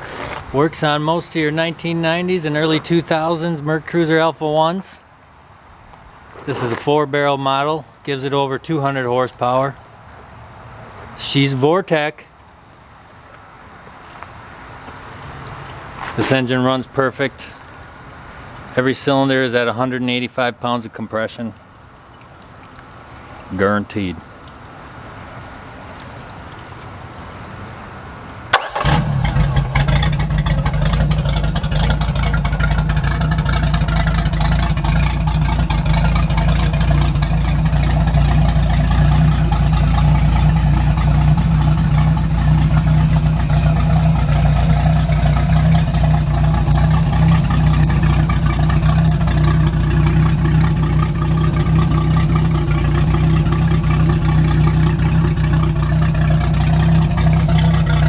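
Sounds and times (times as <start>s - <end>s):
boat engine running: 28.5s - 58.0s
engine cranking: 28.5s - 58.0s.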